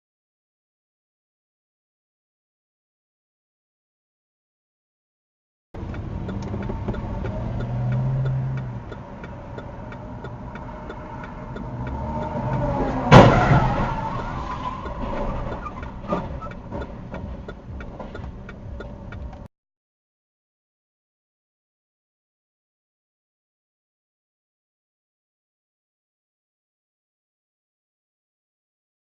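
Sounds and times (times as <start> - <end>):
faint regular ticking: 5.8 - 12.8, 14.8 - 19.5
car running with road noise: 5.8 - 19.5
loud collision crash: 13.0 - 15.5.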